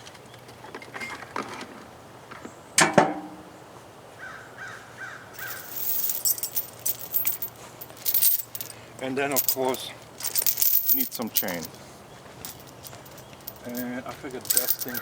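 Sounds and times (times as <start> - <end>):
steel cable clanking: 5.4 - 8.7, 9.4 - 11.8, 12.4 - 15.0
chain rattling: 5.4 - 11.8, 12.4 - 15.0.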